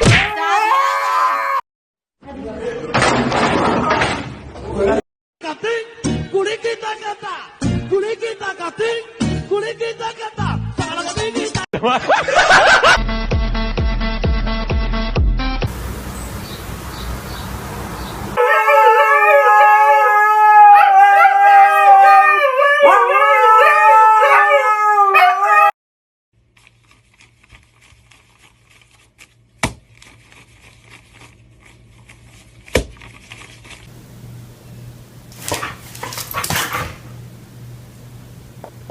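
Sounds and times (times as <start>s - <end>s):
dog howling: 18.4s - 25.8s.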